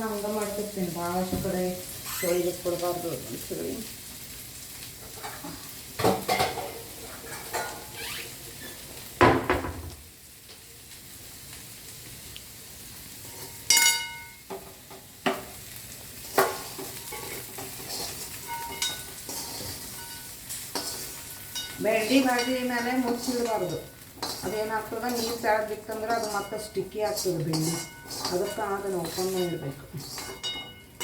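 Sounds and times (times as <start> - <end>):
faint sizzle of frying: 0.0 - 31.0
metal utensils and pans clinking: 5.0 - 8.0, 13.2 - 15.6, 16.2 - 31.0.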